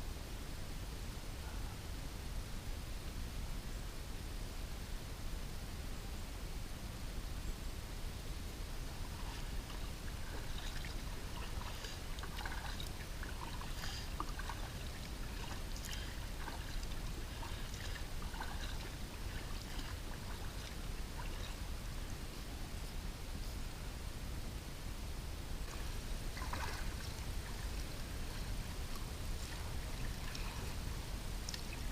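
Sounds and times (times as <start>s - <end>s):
steady low rumble: 0.0s - 31.9s
water splashing around kayak: 8.9s - 22.0s, 25.6s - 31.9s.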